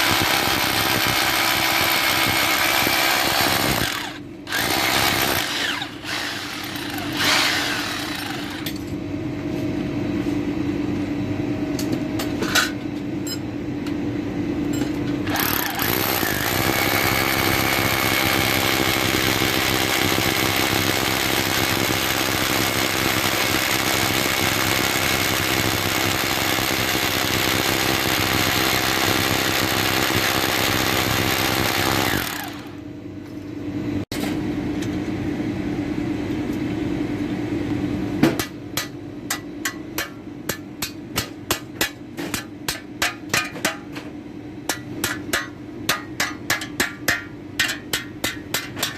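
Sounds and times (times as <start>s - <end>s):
power tool running: 0.0s - 8.8s, 15.2s - 32.8s.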